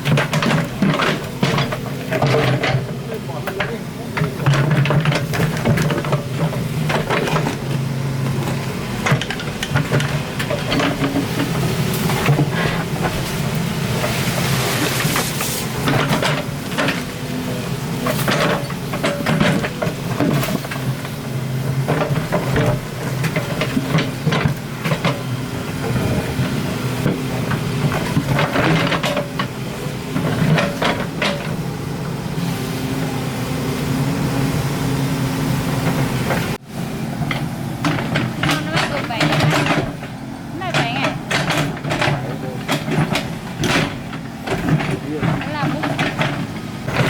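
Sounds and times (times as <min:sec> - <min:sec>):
digging knocks and scrapes: 0:00.0 - 0:17.4, 0:37.2 - 0:47.0
excavator diesel engine running: 0:00.0 - 0:47.0.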